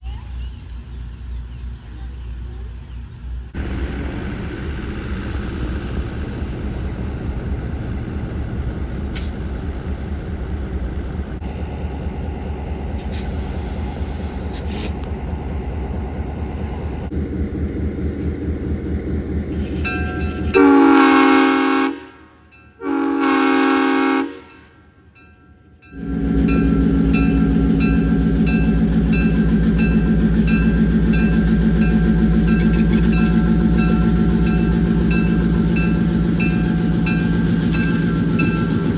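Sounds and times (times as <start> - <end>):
diesel locomotive engine running: 0.0 - 38.9
locomotive air horn blasts: 20.4 - 25.0.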